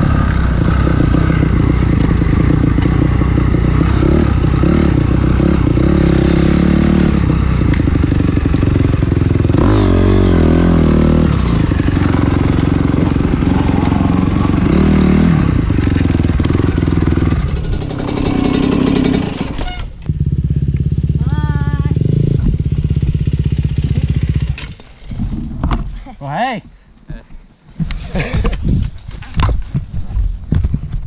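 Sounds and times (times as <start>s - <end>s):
dirt bike engine revving: 0.0s - 24.7s.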